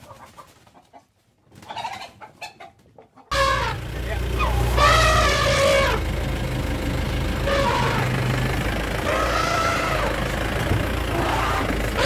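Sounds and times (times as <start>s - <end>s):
vehicle engine idling: 3.3s - 12.0s
faint pitched calls: 7.4s - 8.3s.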